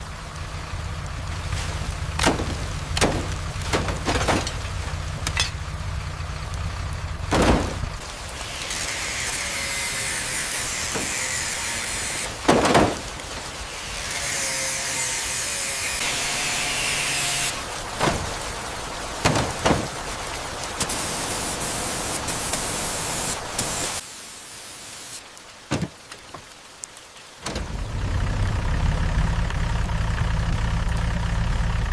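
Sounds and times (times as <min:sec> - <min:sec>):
sharp knocks: 0:02.2 - 0:05.5
spray hiss: 0:20.8 - 0:25.2.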